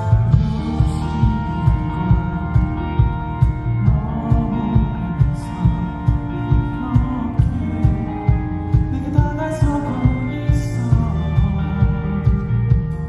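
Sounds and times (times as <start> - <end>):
kick drum beat: 0.0 - 13.0
live pop-rock band: 0.0 - 13.0
person singing: 0.0 - 13.0.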